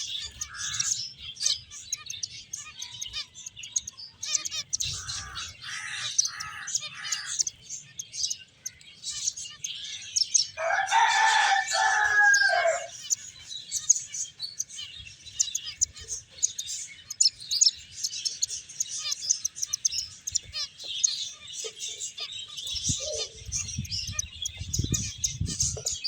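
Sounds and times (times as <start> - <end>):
finches chirping: 0.0 - 26.0
rooster crowing: 10.6 - 13.1.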